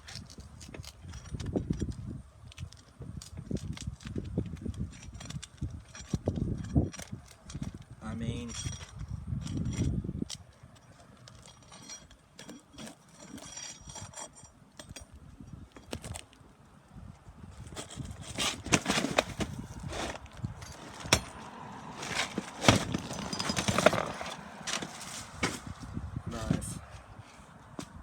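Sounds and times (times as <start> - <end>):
pry tool scraping shingles: 2.6 - 15.2, 17.6 - 25.8
shingle tearing away: 17.6 - 25.8.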